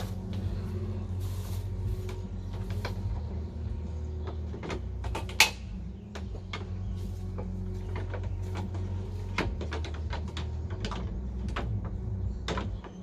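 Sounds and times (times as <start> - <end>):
steady low hum: 0.0 - 12.5
hand tools clicking and knocking: 4.2 - 13.0.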